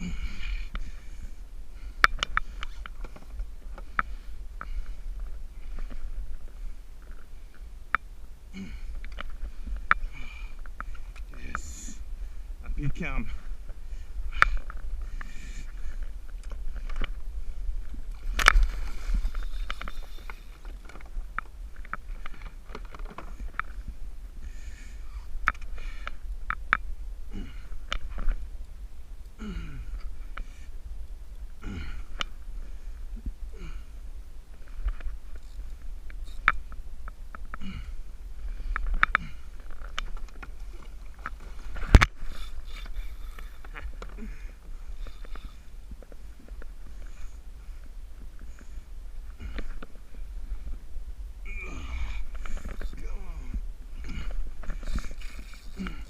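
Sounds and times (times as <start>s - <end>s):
wind and water rumble: 0.0s - 56.0s.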